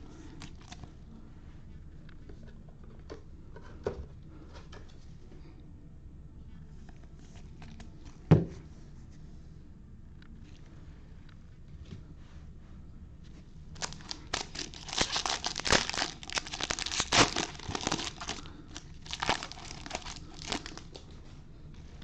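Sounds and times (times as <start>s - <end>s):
plastic wrapper tearing and crinkling: 0.3s - 0.9s, 13.8s - 21.0s.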